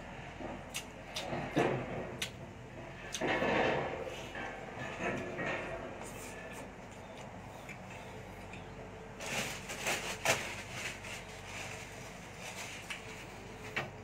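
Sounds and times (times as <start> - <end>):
person chewing and smacking: 0.7 - 1.4, 2.2 - 2.4.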